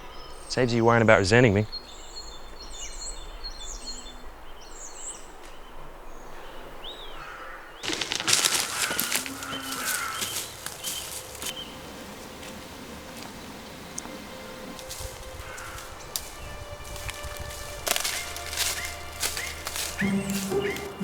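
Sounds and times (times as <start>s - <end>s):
birds chirping and whistling: 7.8s - 21.0s
crackling and rustling: 7.8s - 21.0s.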